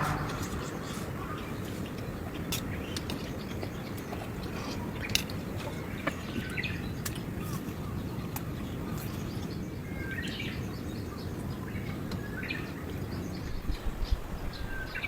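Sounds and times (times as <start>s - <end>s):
steady low rumble: 0.0s - 2.9s
low bumps: 0.0s - 3.0s
birds chirping: 0.0s - 15.0s.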